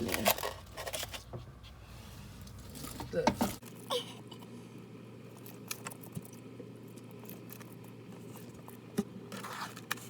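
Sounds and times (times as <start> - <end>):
lizard chewing with clicks and crunches: 5.3 - 8.8.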